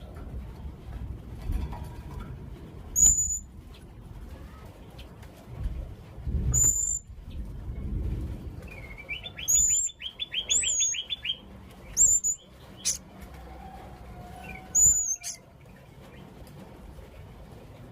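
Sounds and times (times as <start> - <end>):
parrot high-pitched calls: 3.0 - 3.5, 6.6 - 7.1, 8.9 - 13.0, 13.6 - 15.5
parrot low chirps: 12.0 - 13.0, 14.6 - 15.4.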